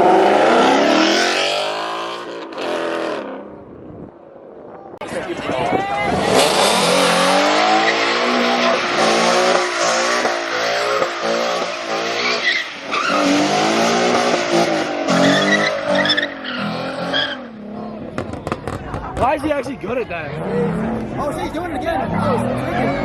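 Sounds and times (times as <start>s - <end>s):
tires screeching: 5.1s - 19.5s
car engine revving: 6.0s - 19.2s.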